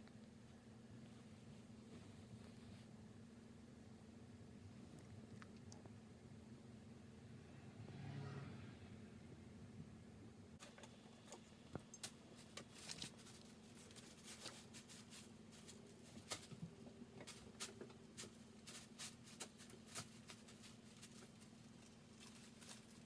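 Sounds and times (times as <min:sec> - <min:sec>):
low steady hum: 0:00.0 - 0:23.0
claws scratching on bedding: 0:12.1 - 0:16.6, 0:17.3 - 0:23.0.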